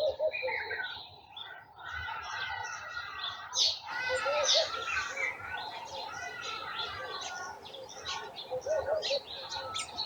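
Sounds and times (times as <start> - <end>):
songbirds chirping and singing: 0.0 - 10.0.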